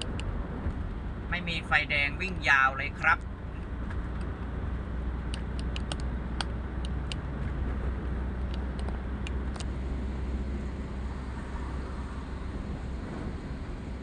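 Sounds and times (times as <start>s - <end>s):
vehicle road and engine rumble: 0.0s - 14.0s
light irregular clicks: 5.3s - 7.2s.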